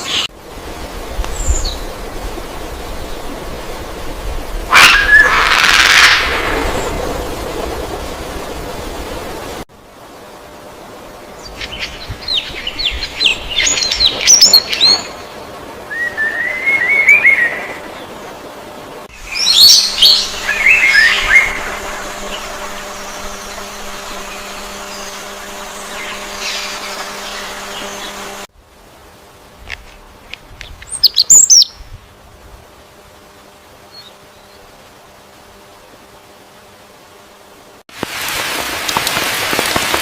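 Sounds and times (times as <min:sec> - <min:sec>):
faint steady hum: 0:00.0 - 0:40.0
bird warbling trill: 0:04.7 - 0:06.4, 0:19.2 - 0:28.4.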